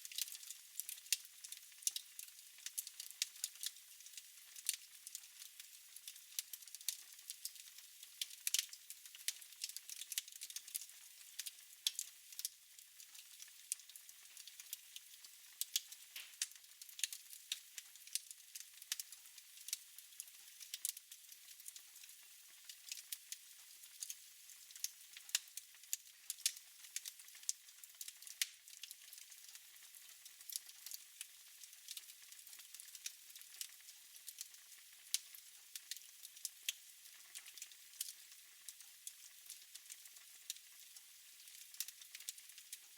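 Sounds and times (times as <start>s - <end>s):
wood fire crackling: 0.0s - 7.6s, 8.2s - 12.5s, 13.1s - 21.0s, 23.9s - 31.0s, 31.6s - 34.5s, 35.1s - 36.5s, 37.1s - 38.2s, 39.1s - 40.8s, 41.4s - 42.6s.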